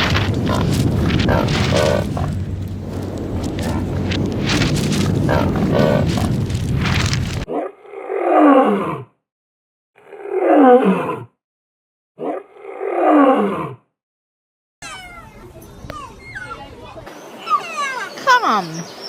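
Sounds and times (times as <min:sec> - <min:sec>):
dense rough noise: 0:00.0 - 0:07.5
large animal roaring: 0:00.0 - 0:09.1.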